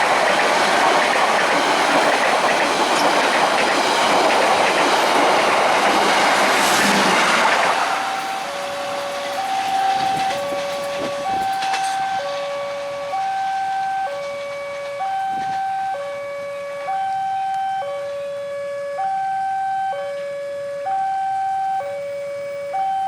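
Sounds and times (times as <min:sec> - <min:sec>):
train clatter: 0:00.0 - 0:18.4
level crossing two-tone alarm: 0:00.0 - 0:23.0.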